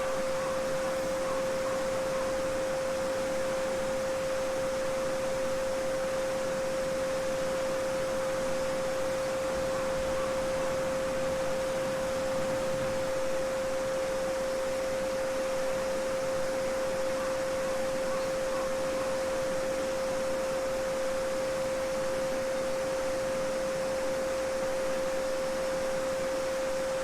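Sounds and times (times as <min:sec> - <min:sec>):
babbling brook: 0:00.0 - 0:02.5
steady sine tone: 0:00.0 - 0:27.0.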